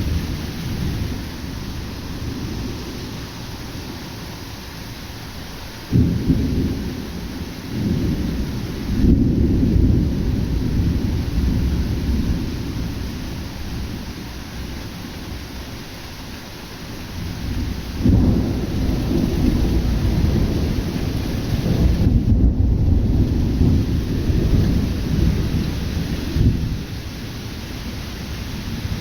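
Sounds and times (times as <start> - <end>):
thunder rumbling: 0.0 - 4.6, 5.9 - 15.5, 17.0 - 29.0
rain falling: 0.0 - 29.0.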